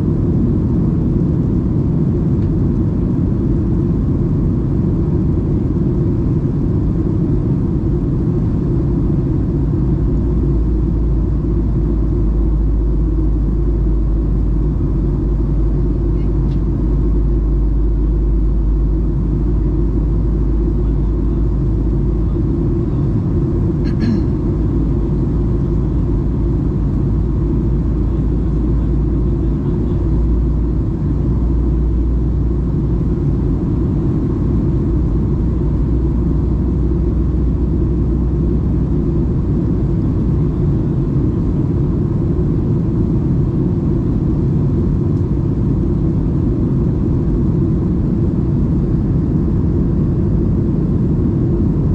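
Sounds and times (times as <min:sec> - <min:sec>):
aircraft cabin rumble: 0:00.0 - 0:51.9.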